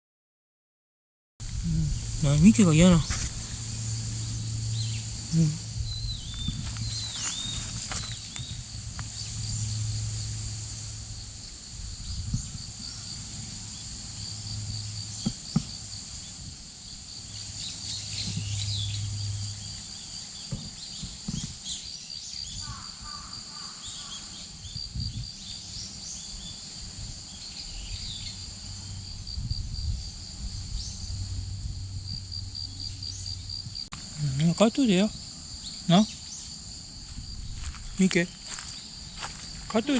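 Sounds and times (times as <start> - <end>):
insects trilling: 1.4 - 39.9
bird chirps: 1.9 - 9.8.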